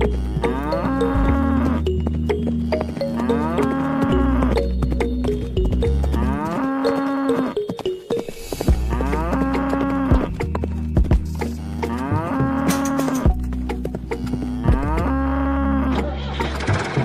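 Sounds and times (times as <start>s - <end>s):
cow mooing: 0.0s - 1.9s, 2.6s - 4.8s, 5.9s - 7.6s, 8.8s - 10.3s, 11.4s - 13.3s, 14.1s - 16.2s.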